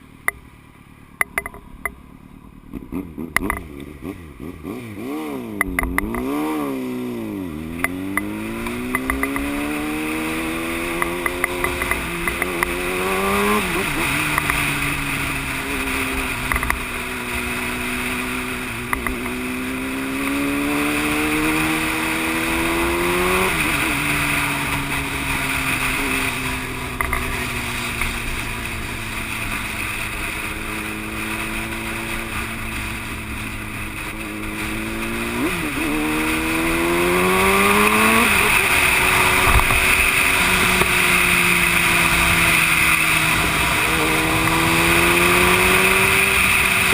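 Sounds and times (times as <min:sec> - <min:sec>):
motorcycle engine accelerating: 0:01.1 - 0:46.9.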